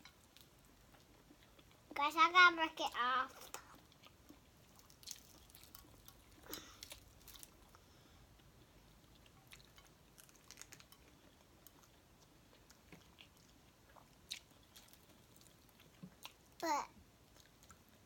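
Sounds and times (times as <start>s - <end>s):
people chewing: 3.4s - 16.4s.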